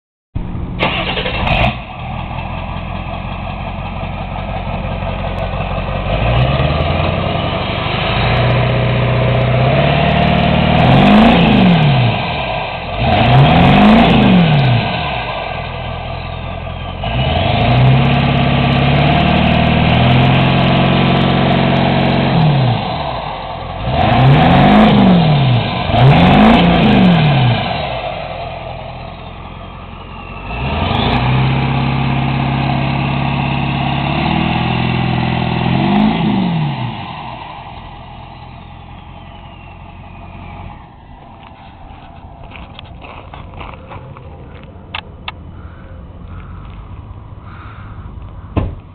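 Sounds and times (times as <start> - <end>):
diesel engine revving: 0.4 - 48.9.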